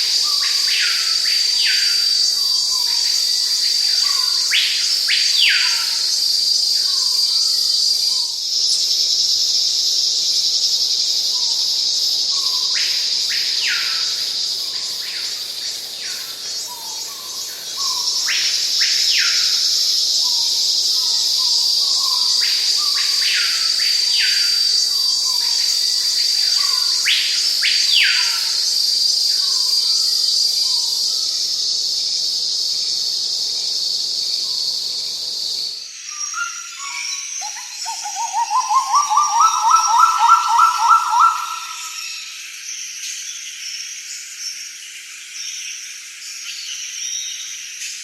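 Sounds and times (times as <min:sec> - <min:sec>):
insects chirring: 0:00.0 - 0:48.0.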